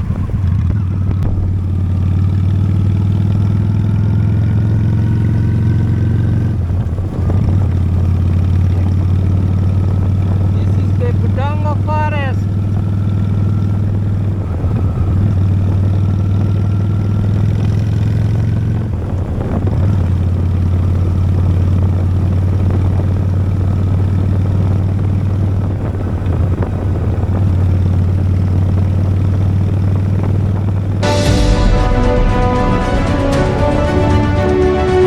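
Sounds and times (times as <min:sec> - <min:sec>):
motorcycle engine running: 0:00.0 - 0:31.0
road and wind noise: 0:00.0 - 0:31.3
music: 0:31.0 - 0:35.0.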